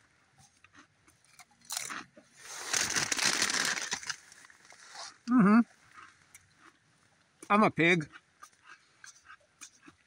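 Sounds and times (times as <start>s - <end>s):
crunchy snack being chewed: 0.3s - 7.3s, 8.0s - 10.0s.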